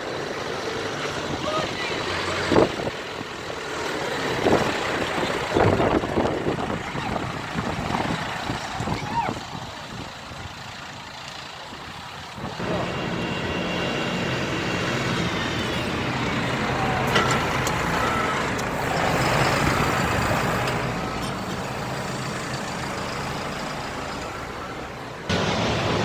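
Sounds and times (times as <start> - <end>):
heavy vehicle engine passing: 0.0 - 26.0.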